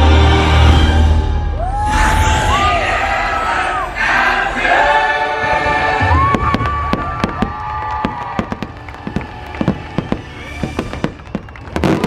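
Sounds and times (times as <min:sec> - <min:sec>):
fireworks booming: 0:06.0 - 0:12.0
fireworks cracking: 0:06.0 - 0:12.0.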